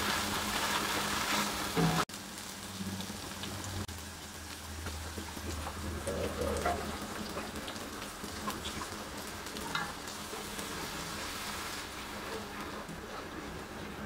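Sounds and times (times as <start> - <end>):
frying sizzle in wok: 0.0 - 14.0
liquid pouring: 5.0 - 13.2
spatula stirring and scraping pan: 5.2 - 14.0.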